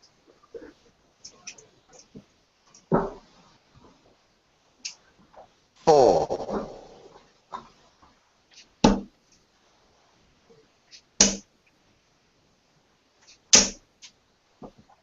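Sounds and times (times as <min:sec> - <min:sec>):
darts striking dartboard: 0:08.8 - 0:09.1, 0:11.2 - 0:11.4, 0:13.5 - 0:13.8.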